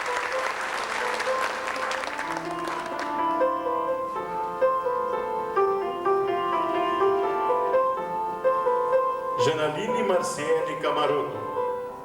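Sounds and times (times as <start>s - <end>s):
audience applause: 0.0s - 3.4s
slow piano melody: 0.0s - 12.0s.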